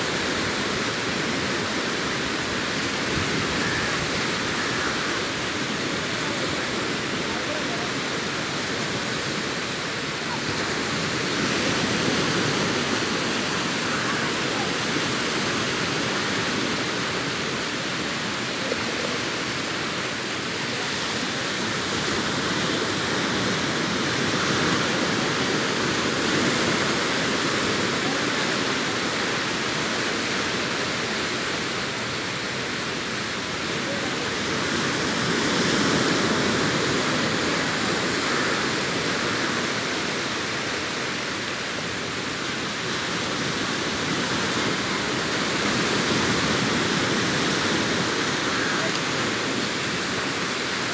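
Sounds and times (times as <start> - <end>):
sea surf breaking on beach: 0.0 - 50.9.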